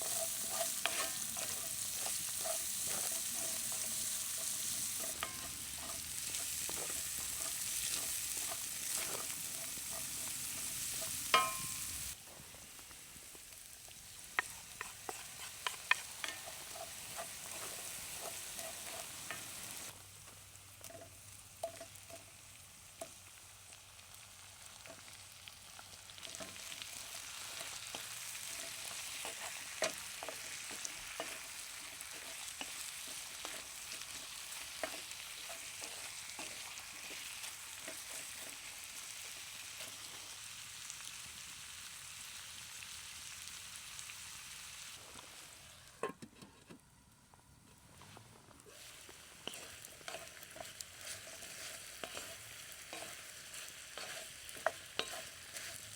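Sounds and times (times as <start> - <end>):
chicken wings sizzling: 0.0 - 46.2, 47.0 - 55.9
ringing clink: 11.4 - 11.9.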